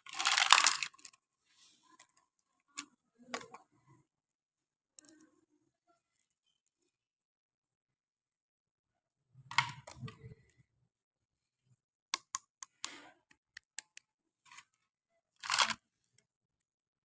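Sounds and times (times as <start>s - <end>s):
plastic packaging rustling: 0.0s - 1.1s
plastic toy clicking: 15.4s - 15.8s.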